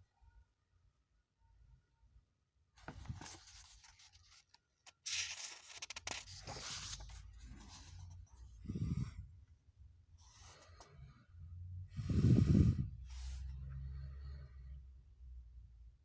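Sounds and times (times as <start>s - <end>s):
rustling and scraping: 2.8s - 9.0s.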